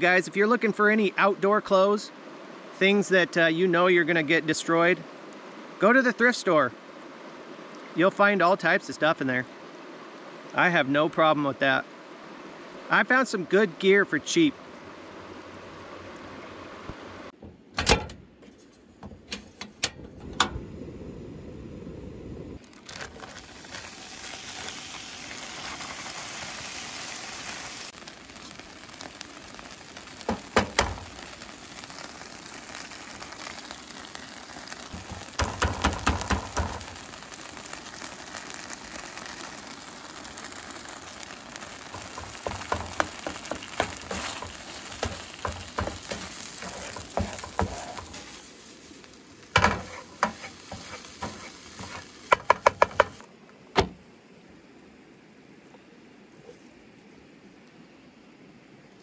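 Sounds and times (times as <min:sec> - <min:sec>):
eggs sizzling in a frying pan: 0:20.2 - 0:53.2
spatula scraping a pan: 0:41.9 - 0:48.5, 0:49.6 - 0:53.2.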